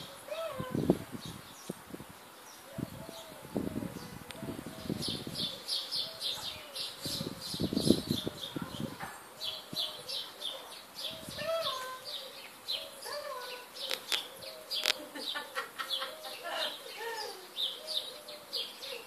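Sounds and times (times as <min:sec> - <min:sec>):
small birds chirping: 0:00.0 - 0:19.0
sharp clicks: 0:13.9 - 0:15.0.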